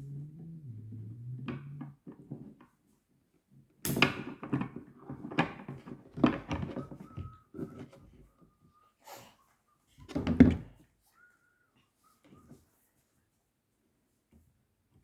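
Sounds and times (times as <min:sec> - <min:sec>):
low steady hum: 0:00.0 - 0:02.0.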